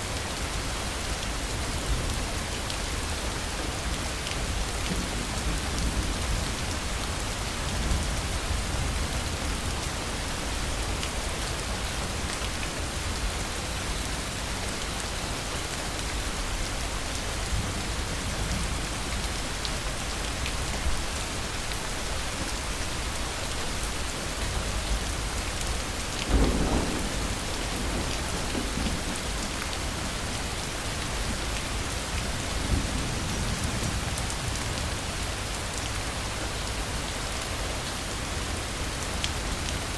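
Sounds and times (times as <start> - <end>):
heavy rain: 0.0 - 39.9
sharp thunderclap: 26.3 - 29.3
rolling thunder: 26.3 - 29.8.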